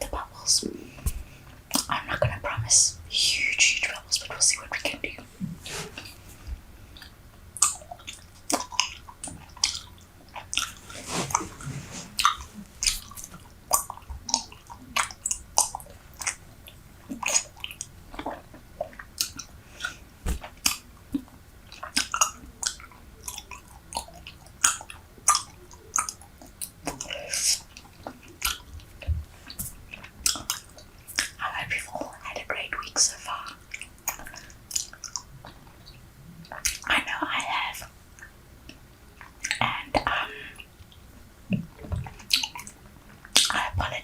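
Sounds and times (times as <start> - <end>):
bubble gum chewing smacks: 7.0 - 11.6, 12.2 - 16.4, 17.1 - 31.4, 33.4 - 36.9, 41.5 - 43.6.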